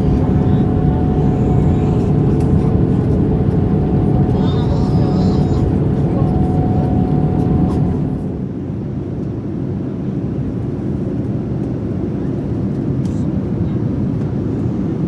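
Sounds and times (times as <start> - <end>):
airliner cabin rumble: 0.0 - 8.6.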